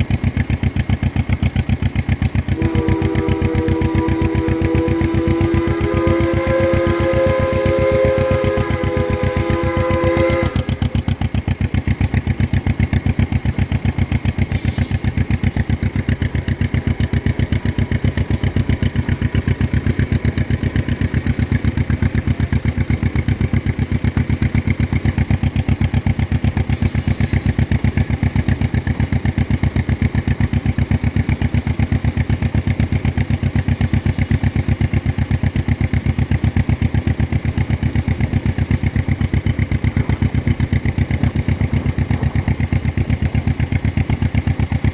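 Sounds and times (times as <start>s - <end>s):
two-cylinder tractor engine pulsing: 0.0s - 44.9s.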